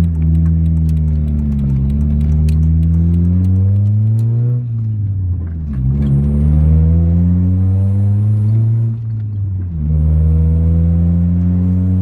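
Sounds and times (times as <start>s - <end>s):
car engine revving from inside cabin: 5.7s - 12.0s.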